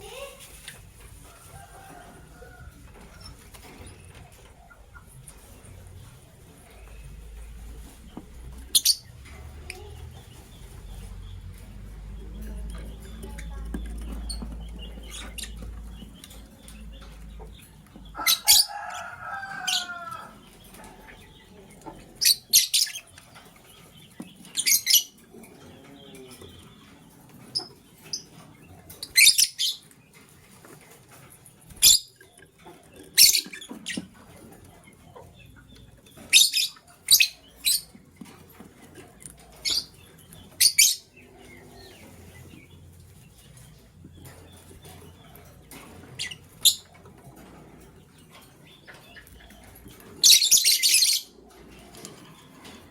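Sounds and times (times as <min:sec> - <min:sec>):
lovebird chirping: 0:08.6 - 0:11.4, 0:50.2 - 0:51.4.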